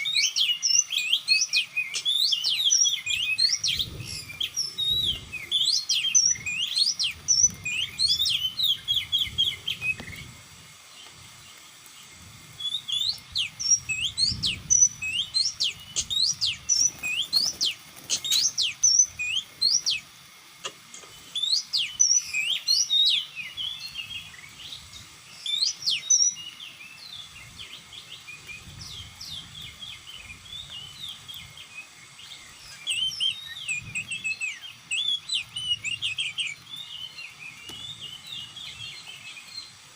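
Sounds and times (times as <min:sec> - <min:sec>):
bird chirping and whistling: 0:00.0 - 0:10.3, 0:12.6 - 0:20.0, 0:21.3 - 0:24.8, 0:25.4 - 0:27.2, 0:32.6 - 0:39.7.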